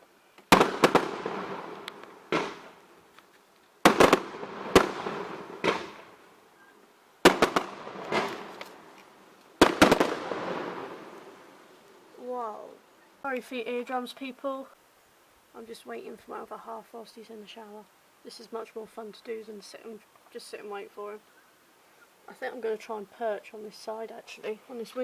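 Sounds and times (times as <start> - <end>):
fireworks banging: 0.5 - 2.9, 3.8 - 6.2, 7.2 - 11.3.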